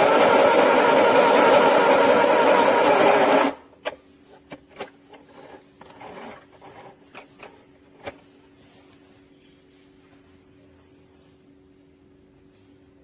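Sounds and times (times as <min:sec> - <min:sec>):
fabric rubbing and rustling: 0:05.3 - 0:09.4.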